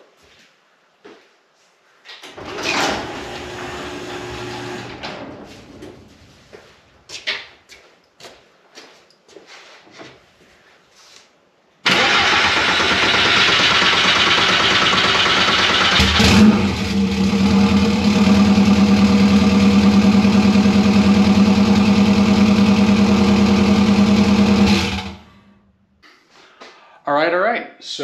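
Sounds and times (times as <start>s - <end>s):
starter cranking engine: 11.9s - 18.5s
car engine idling: 11.9s - 25.3s.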